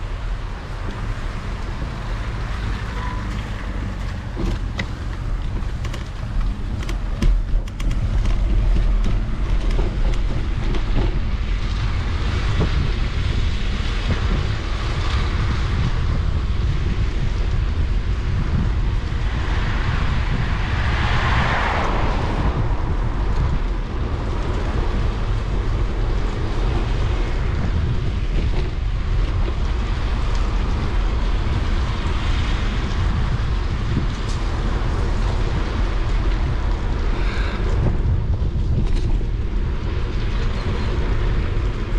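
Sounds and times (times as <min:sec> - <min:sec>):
wind rumbling on microphone: 0:00.0 - 0:41.9
tyres hissing on wet path: 0:30.0 - 0:37.9.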